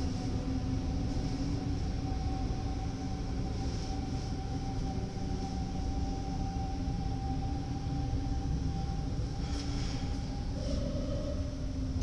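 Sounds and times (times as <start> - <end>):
high whine: 0.0 - 12.0
low hum: 0.0 - 12.0
train rumbling: 0.0 - 12.0.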